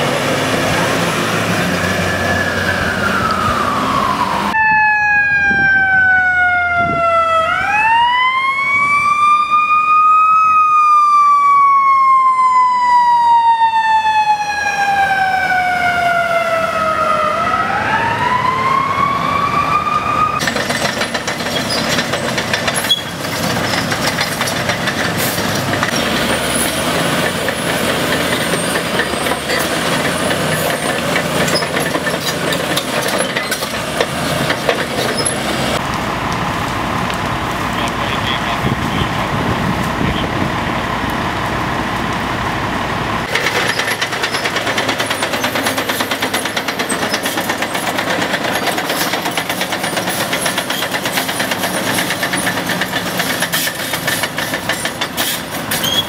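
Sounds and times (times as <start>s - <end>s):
fire engine siren wailing: 0.0s - 20.5s, 25.1s - 43.3s
truck engine running: 20.4s - 56.0s.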